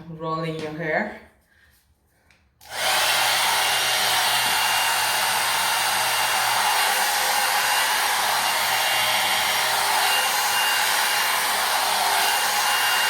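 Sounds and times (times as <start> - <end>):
hair dryer blowing: 2.6 - 13.0.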